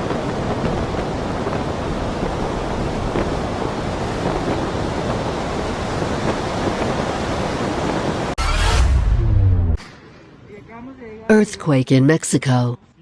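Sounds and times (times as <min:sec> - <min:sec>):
storm wind buffeting microphone: 0:00.0 - 0:08.4.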